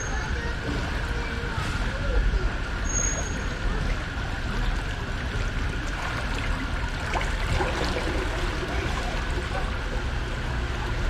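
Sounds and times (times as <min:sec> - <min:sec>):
running water trickling: 0:04.7 - 0:11.0.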